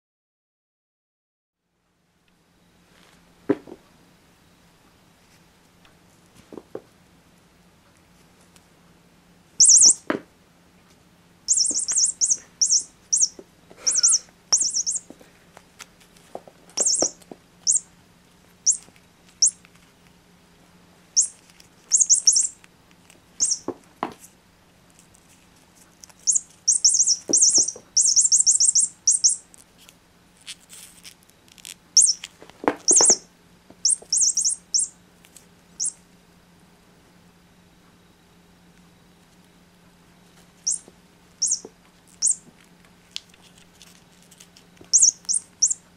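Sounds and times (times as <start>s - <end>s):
electronic toy bird chirping: 9.6s - 10.0s, 11.5s - 15.1s, 16.8s - 17.9s, 18.6s - 18.8s, 19.4s - 19.6s, 21.2s - 22.6s, 23.4s - 23.7s, 26.2s - 29.4s, 32.0s - 32.3s, 32.9s - 34.9s, 35.8s - 36.0s, 40.6s - 42.4s, 44.9s - 45.8s.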